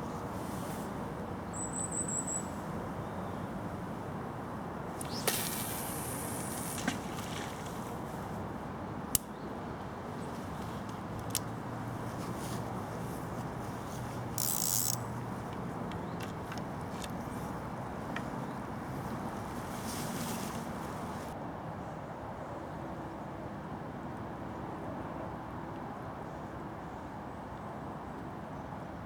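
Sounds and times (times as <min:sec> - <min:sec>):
outdoor background hiss: 0:00.0 - 0:21.4
short hissing rustles: 0:05.0 - 0:08.4, 0:18.2 - 0:21.4
fishing tackle clicks: 0:10.8 - 0:11.6, 0:14.2 - 0:17.4.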